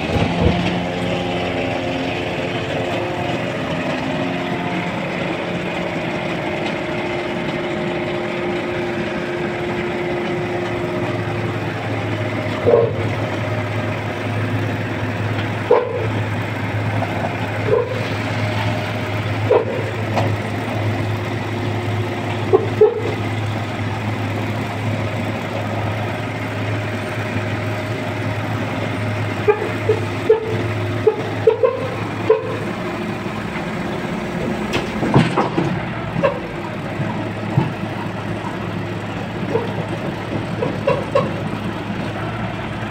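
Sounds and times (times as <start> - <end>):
garbage truck running: 0.0 - 42.9
metal clanks and squeaks: 34.7 - 38.6, 39.4 - 41.5.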